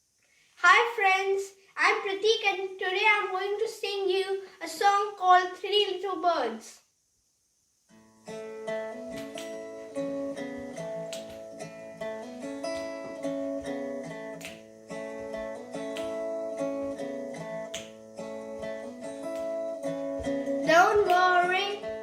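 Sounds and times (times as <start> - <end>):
acoustic guitar strumming: 7.9 - 22.0.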